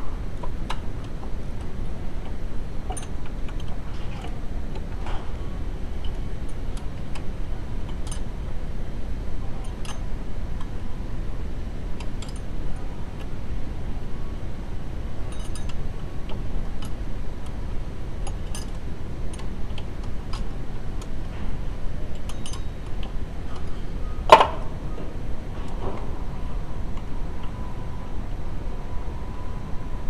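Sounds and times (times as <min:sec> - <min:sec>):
metal tools clicking and clinking: 0:23.6 - 0:24.7
loud metal clank: 0:24.3 - 0:24.8.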